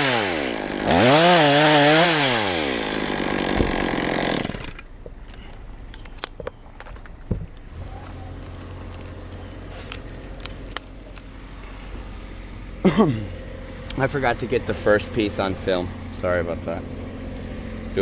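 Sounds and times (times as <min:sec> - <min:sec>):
chainsaw running: 0:00.0 - 0:04.9
low engine hum: 0:04.9 - 0:18.0.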